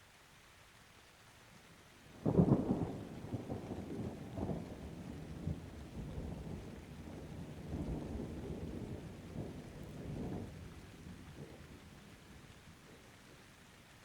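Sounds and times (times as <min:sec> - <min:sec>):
steady rain: 0:00.0 - 0:14.0
thunder rumbling: 0:02.2 - 0:12.2.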